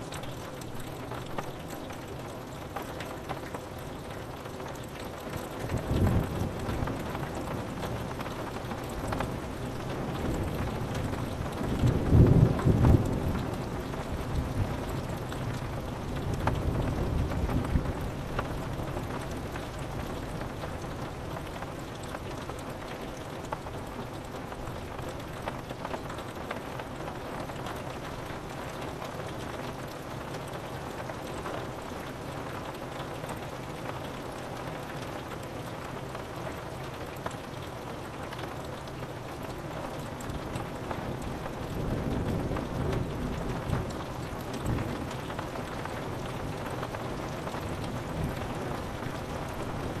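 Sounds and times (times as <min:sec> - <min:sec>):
rain on a window: 0:00.0 - 0:50.0
raindrop ticks: 0:00.0 - 0:50.0
thunder rumble: 0:41.2 - 0:46.3.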